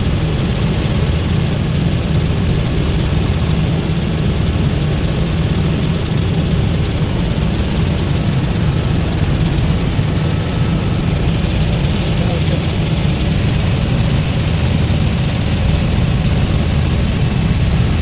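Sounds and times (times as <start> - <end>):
helicopter engine and rotor drone: 0.0 - 18.0
faint high whine: 3.6 - 18.0.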